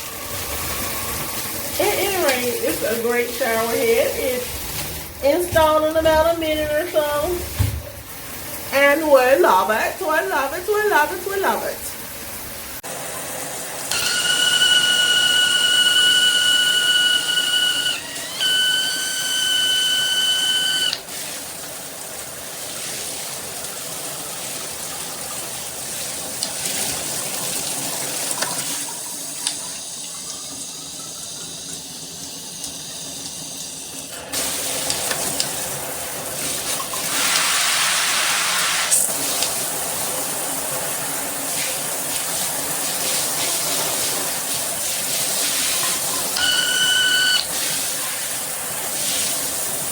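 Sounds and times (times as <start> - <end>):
high steady whistle: 0.0 - 1.7, 13.9 - 21.0, 46.4 - 47.5
shower head spraying water: 0.0 - 6.0, 13.8 - 21.7, 32.4 - 49.9.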